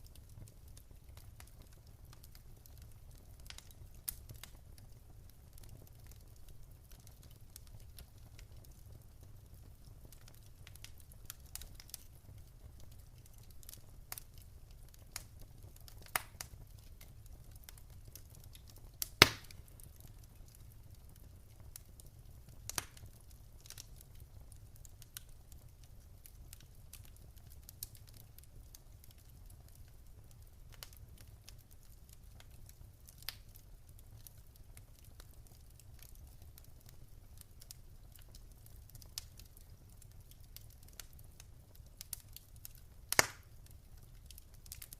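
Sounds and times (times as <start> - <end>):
wood fire crackling: 0.0 - 44.9
loud fire pop: 19.2 - 19.6, 43.2 - 43.4.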